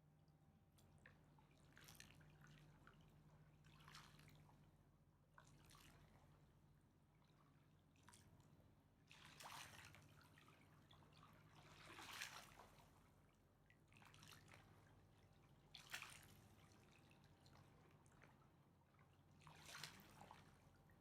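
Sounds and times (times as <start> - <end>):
water lapping and splashing: 1.0 - 6.4, 9.0 - 21.0.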